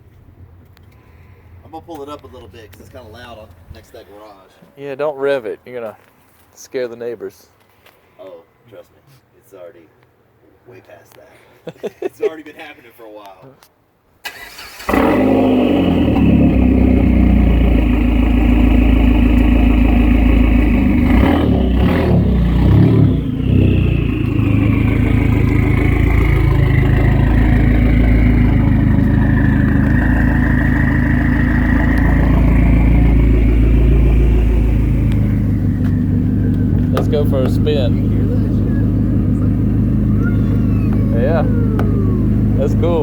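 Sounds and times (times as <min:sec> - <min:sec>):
car engine idling loudly: 0:15.3 - 0:43.0.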